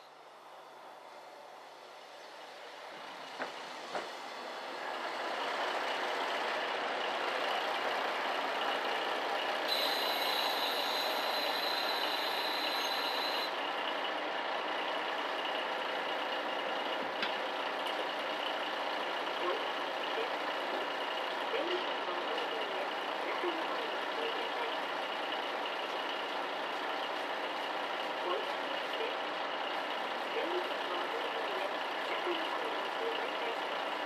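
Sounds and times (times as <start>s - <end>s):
diesel railcar running: 0.0s - 34.0s
brake squeal: 9.7s - 13.6s.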